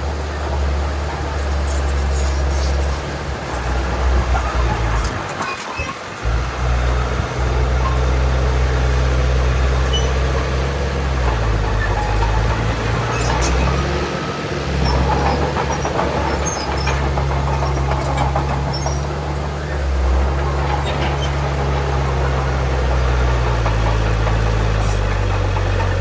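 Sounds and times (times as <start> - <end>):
large diesel engine running: 0.0 - 26.0.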